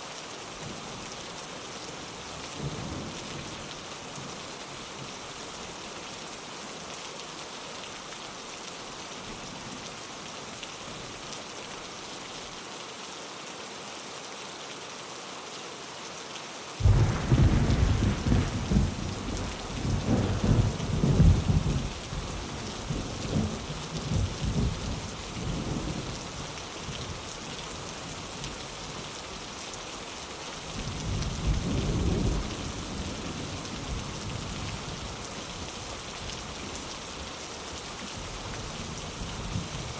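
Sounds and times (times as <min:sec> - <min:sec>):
rain on a window: 0:00.0 - 0:39.9
thunder cracking and rolling: 0:16.8 - 0:22.0.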